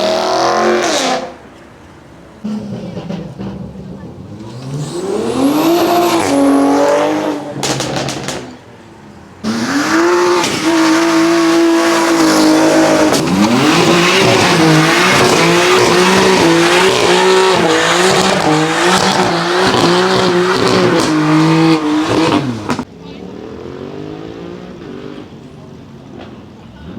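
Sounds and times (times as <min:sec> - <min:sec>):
car engines revving hard: 0:00.0 - 0:26.9.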